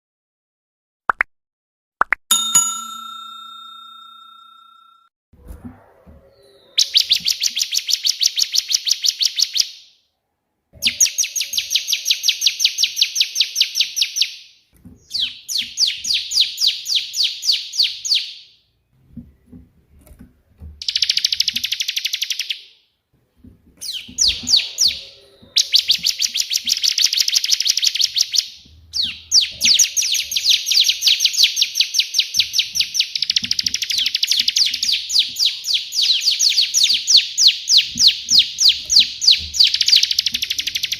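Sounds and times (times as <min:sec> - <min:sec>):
bird singing rapid sharp notes: 0:06.3 - 0:09.7, 0:20.8 - 0:22.7, 0:23.8 - 0:40.9.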